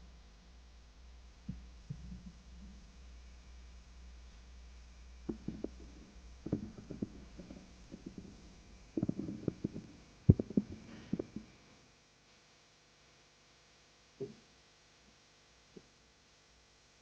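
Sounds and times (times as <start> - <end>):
faint low hum: 0.0 - 17.0
soft knocks and thumps: 5.3 - 11.5.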